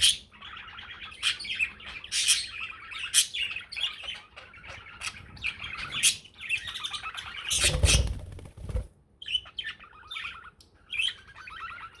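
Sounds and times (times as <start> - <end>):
budgerigar warbling and chattering: 9.2 - 12.0.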